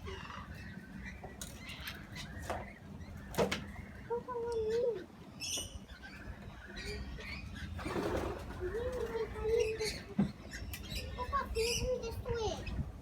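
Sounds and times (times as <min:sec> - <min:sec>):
parrots fluttering: 0:07.8 - 0:09.7.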